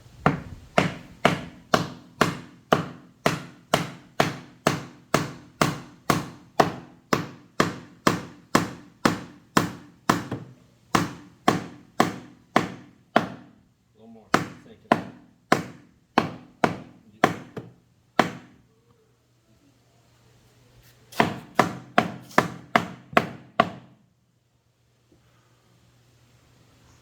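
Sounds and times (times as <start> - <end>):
hammer striking nail into wood: 0.2 - 13.6, 14.3 - 18.6, 21.2 - 24.0.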